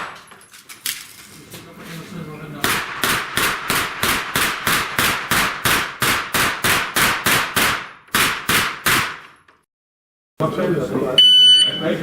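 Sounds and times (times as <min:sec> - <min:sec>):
semi-automatic gunshots: 0:02.6 - 0:09.2.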